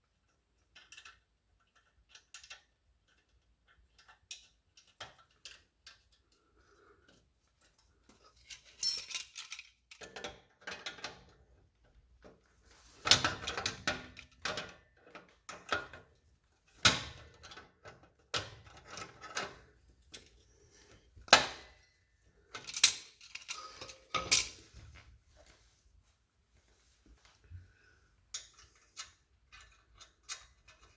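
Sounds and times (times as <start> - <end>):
metal tools clinking: 8.4 - 9.8, 22.5 - 24.7.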